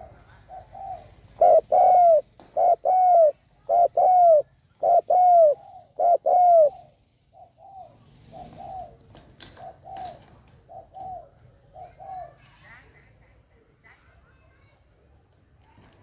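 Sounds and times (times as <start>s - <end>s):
dove cooing: 0.0s - 12.5s.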